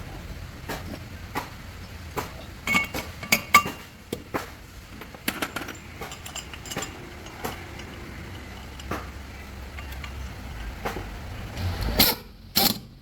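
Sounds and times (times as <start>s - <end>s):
metal pieces clinking: 5.0s - 8.9s.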